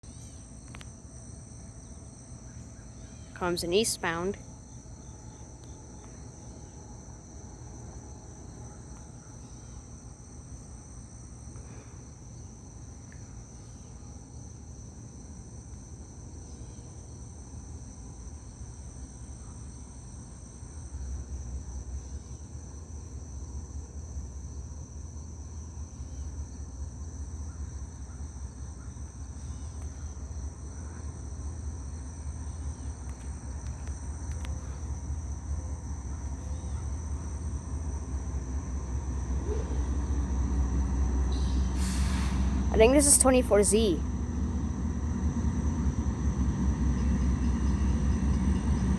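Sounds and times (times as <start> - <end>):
crickets chirping: 0.0 - 48.9
freight train rumble: 30.2 - 48.9.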